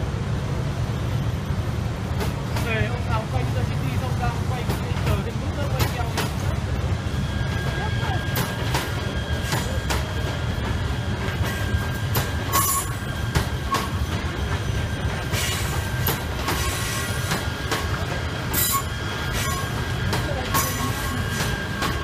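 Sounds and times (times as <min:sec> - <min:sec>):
train wheels rumbling on rail: 0:00.0 - 0:22.0
wheel squeal: 0:11.5 - 0:14.1, 0:18.5 - 0:22.0.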